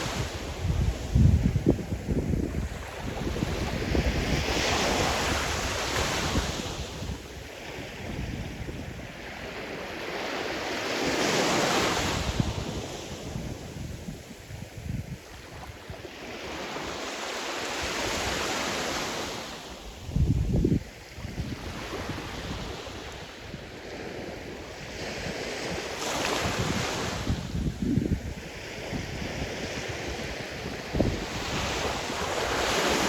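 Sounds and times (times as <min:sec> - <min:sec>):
wind buffeting microphone: 0:00.0 - 0:09.4, 0:20.0 - 0:33.0
sea waves breaking: 0:28.5 - 0:33.0.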